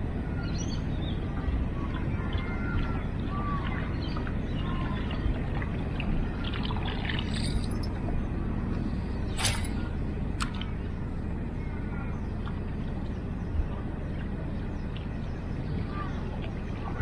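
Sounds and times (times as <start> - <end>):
water trickling and splashing: 1.2 - 8.2.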